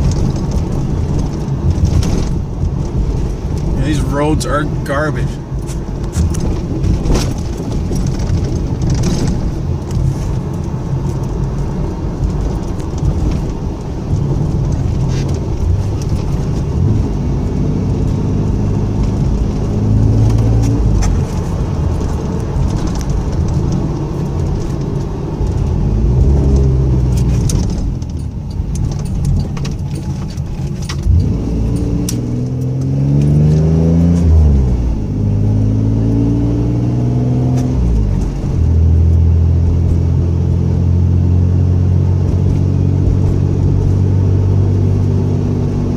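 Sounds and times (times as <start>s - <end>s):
car engine accelerating: 0.0s - 45.9s
road and tyre rumble: 0.0s - 45.9s
rattles and knocks: 5.6s - 16.8s, 20.2s - 32.0s.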